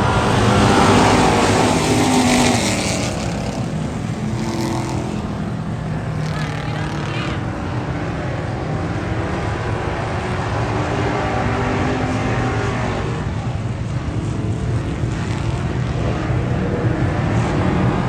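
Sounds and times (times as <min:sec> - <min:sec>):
vehicle engine running: 0:00.0 - 0:10.7
road and wind noise: 0:00.0 - 0:18.0.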